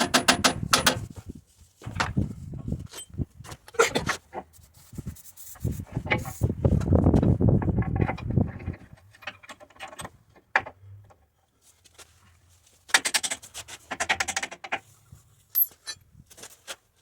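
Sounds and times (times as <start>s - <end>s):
tools clicking and knocking: 0.0s - 1.0s, 12.9s - 14.8s, 15.6s - 16.0s.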